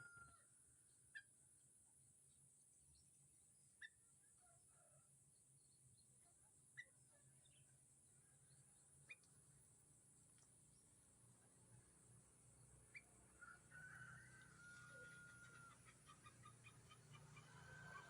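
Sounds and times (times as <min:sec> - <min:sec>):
faint bird chirps: 0:02.2 - 0:09.8, 0:12.8 - 0:13.2.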